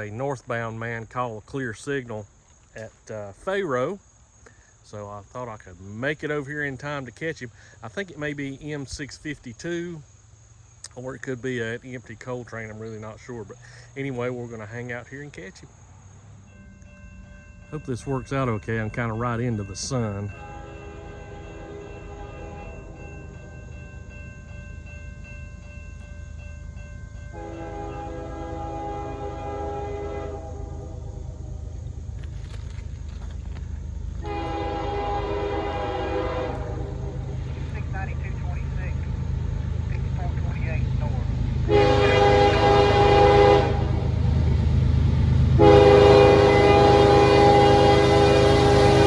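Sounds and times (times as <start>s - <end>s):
train rumbling: 14.2s - 49.0s
locomotive horn chord: 16.7s - 25.0s, 26.9s - 32.0s, 34.1s - 49.0s.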